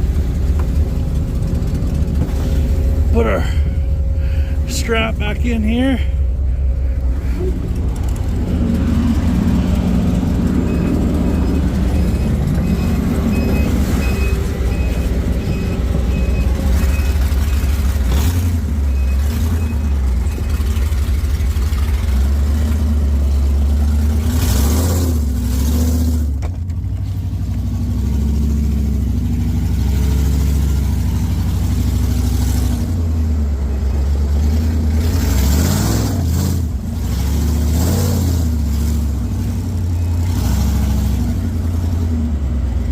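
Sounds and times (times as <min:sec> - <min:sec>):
truck engine running under load: 0:00.0 - 0:42.9
faint repeating beep: 0:10.6 - 0:17.2.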